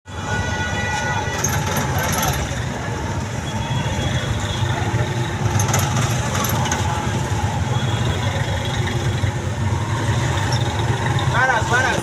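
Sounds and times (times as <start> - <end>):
heavy engine running: 5.0 - 11.3.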